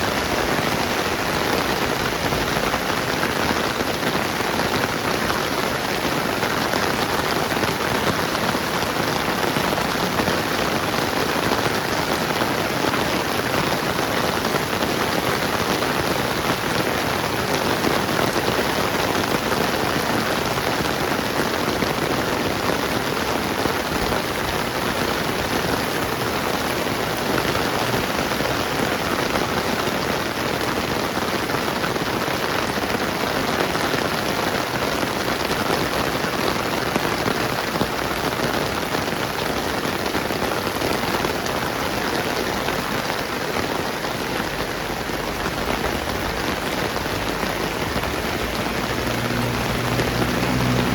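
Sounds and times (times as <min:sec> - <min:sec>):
steady rain hiss: 0:00.0 - 0:50.9.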